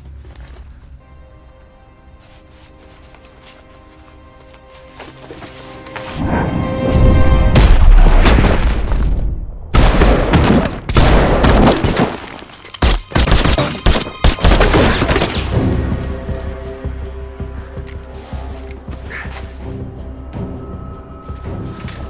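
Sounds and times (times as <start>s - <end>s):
action music score: 0.9s - 22.0s
heavy rapid gunfire: 9.7s - 12.0s.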